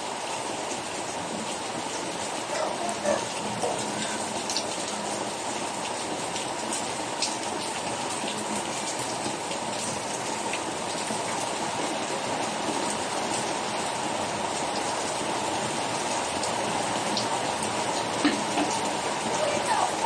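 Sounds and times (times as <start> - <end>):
steady rainfall: 0.0 - 20.0.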